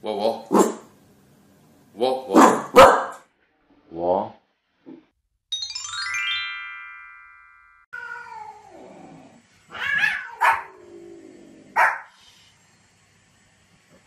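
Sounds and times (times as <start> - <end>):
descending chime glissando: 5.5 - 7.9
dog yelping: 9.7 - 10.8, 11.8 - 12.1.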